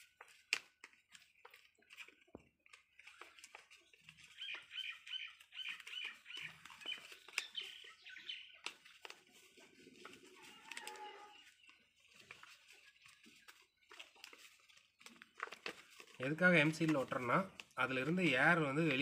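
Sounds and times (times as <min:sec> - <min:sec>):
faint paper rustling: 0:00.0 - 0:19.0
birds chirping: 0:03.0 - 0:15.1.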